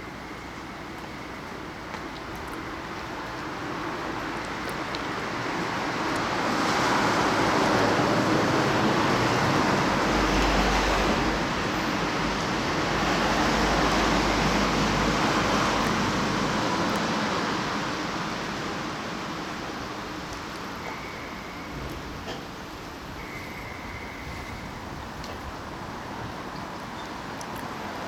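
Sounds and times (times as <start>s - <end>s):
strong wind gusts: 21.7s - 26.6s.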